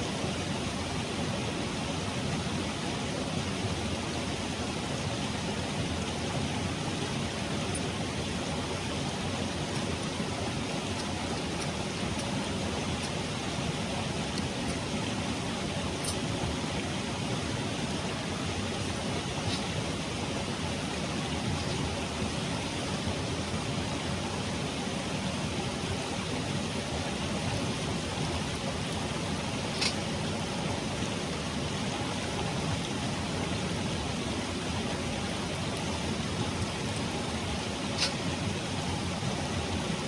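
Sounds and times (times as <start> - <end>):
stream rushing over rocks: 0.0 - 40.0.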